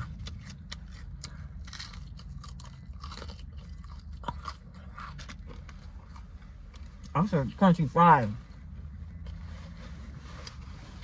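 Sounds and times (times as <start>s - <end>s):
crunching fried chicken: 0.0s - 6.9s
steady low hum: 0.0s - 11.0s.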